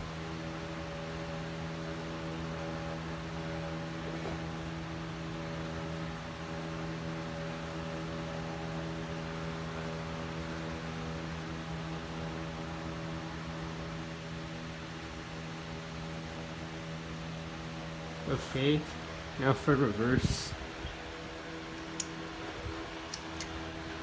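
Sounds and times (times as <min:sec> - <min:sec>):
ceiling fan motor hum: 0:00.0 - 0:24.0
air rush from fan blades: 0:16.3 - 0:24.0.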